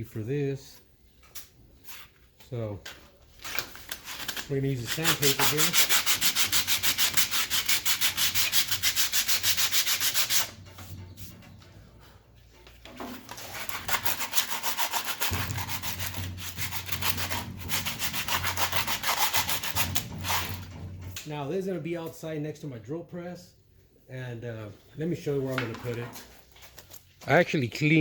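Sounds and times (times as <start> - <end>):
sandpaper rubbing on metal: 4.0 - 11.4, 13.3 - 20.7.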